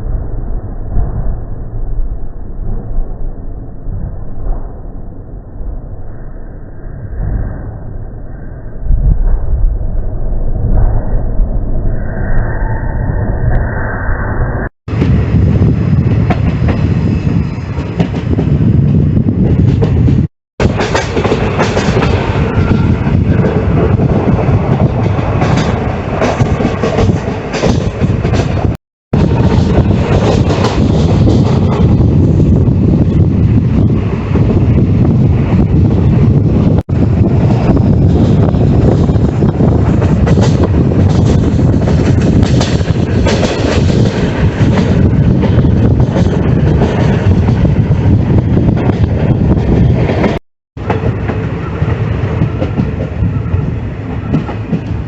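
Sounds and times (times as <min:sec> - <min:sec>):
train rumbling and rattling: 0:00.0 - 0:05.3, 0:08.9 - 0:11.9, 0:14.9 - 0:55.0.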